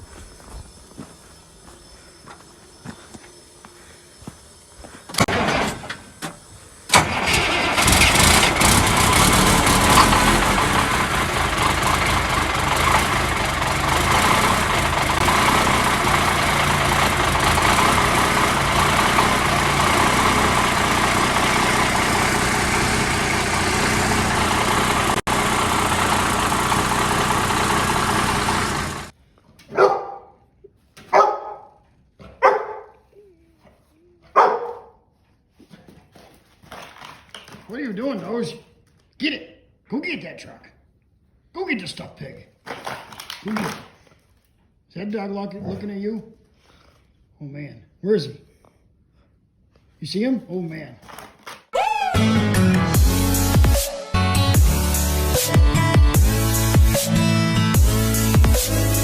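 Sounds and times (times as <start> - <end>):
diesel engine cranking: 5.1 - 29.2, 52.2 - 59.0
truck engine running: 5.2 - 29.2, 52.2 - 59.0
dog barking: 29.7 - 30.4, 31.1 - 33.0, 34.3 - 35.0.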